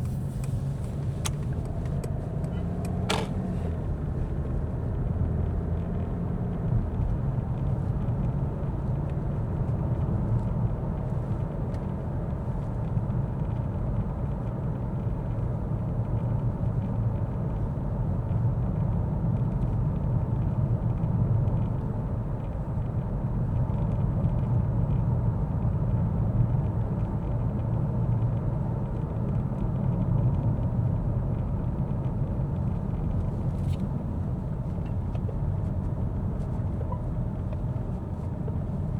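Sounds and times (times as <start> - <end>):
car road and engine rumble: 0.0 - 38.9.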